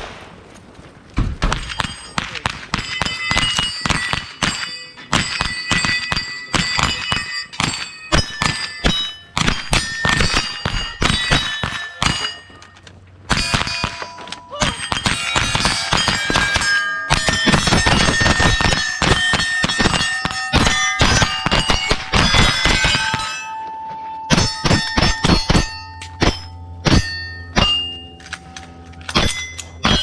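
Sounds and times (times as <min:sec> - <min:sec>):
rapid rifle shots: 0:01.4 - 0:12.4, 0:13.3 - 0:23.3
steel plates clanging: 0:01.6 - 0:30.0.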